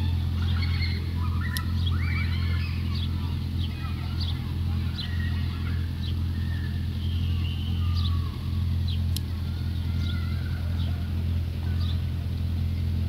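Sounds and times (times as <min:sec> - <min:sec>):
vehicle engine hum: 0:00.0 - 0:13.0
sharp clicks: 0:01.4 - 0:01.9, 0:09.0 - 0:09.4.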